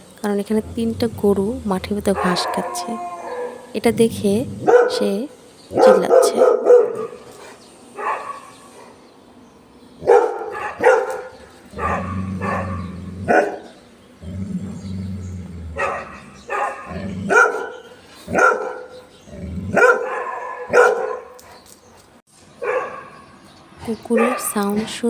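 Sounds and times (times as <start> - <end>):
low steady hum: 0.0 - 6.6
dog barking: 2.0 - 3.7, 4.6 - 5.0, 5.7 - 9.0, 10.0 - 13.7, 15.8 - 19.0, 19.8 - 21.6, 22.6 - 23.2, 24.2 - 24.6.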